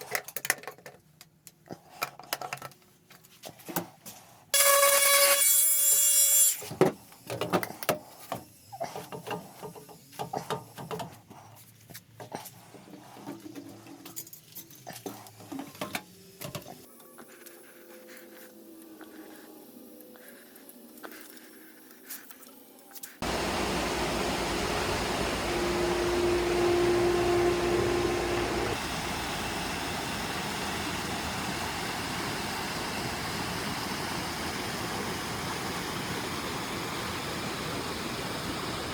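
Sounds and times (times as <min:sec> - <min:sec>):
pool pump water rush: 0:23.2 - 0:38.9
steady hum: 0:23.2 - 0:38.9.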